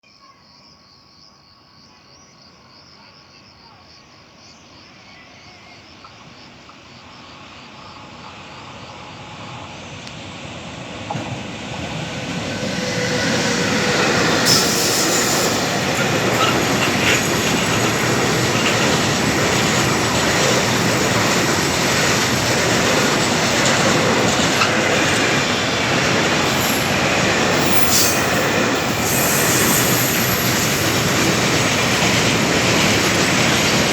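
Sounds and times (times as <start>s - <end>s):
freight train rumbling past: 7.2s - 33.9s
train wheel squeal: 11.9s - 33.9s.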